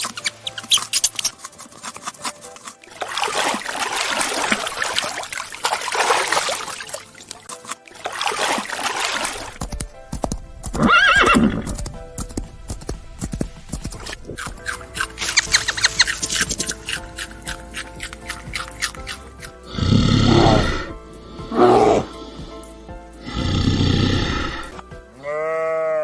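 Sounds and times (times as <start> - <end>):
quiet background music: 0.0 - 26.0
horse neighing: 10.8 - 11.8, 19.7 - 22.4, 23.3 - 26.0
noisy breathy sound: 19.6 - 24.8.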